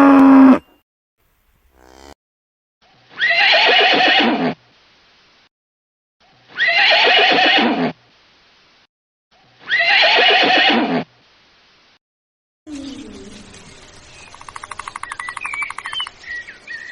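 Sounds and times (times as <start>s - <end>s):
horse whinnying: 3.2s - 4.4s, 6.6s - 7.8s, 9.7s - 11.0s.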